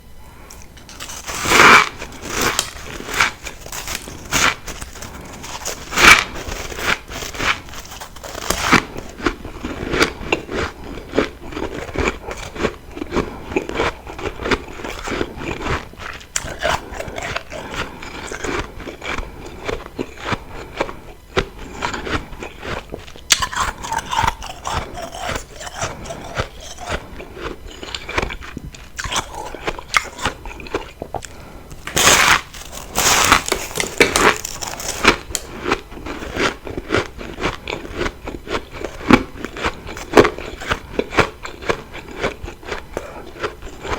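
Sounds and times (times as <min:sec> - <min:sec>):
frost being bitten and chewed: 0:00.5 - 0:43.9.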